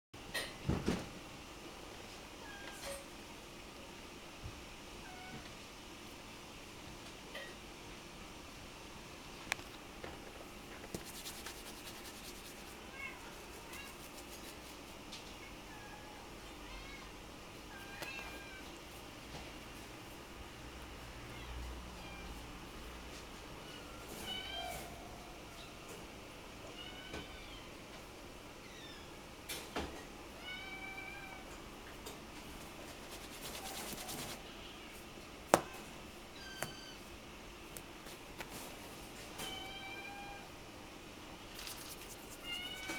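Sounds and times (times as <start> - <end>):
kitten mewing: 42.1 - 42.9.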